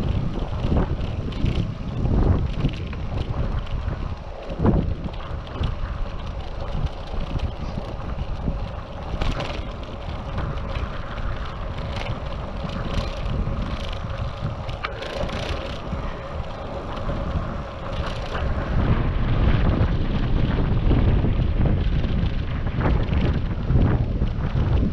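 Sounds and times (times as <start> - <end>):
rolling road noise: 0.0 - 24.9
wind buffeting microphone: 0.0 - 24.9.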